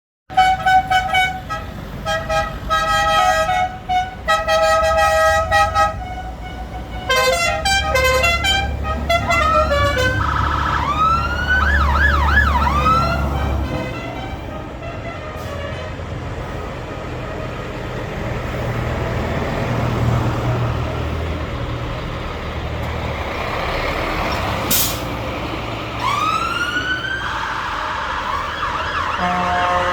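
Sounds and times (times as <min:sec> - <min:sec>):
vehicle horn toots: 0:00.3 - 0:10.2, 0:29.2 - 0:29.9
farm vehicle engine rumble: 0:00.4 - 0:29.9
siren warbling: 0:09.3 - 0:13.3.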